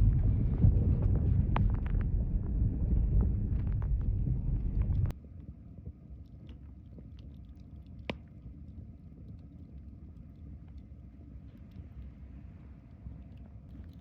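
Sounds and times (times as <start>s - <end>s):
wood fire crackling: 0.0s - 5.1s
low steady fire rumble: 0.0s - 14.0s.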